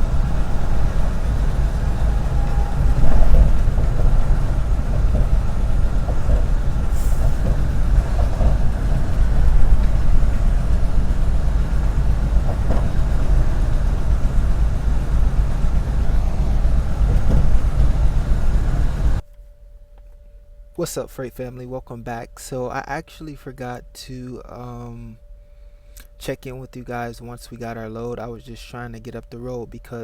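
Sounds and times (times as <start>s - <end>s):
truck engine and road rumble: 0.0s - 19.2s.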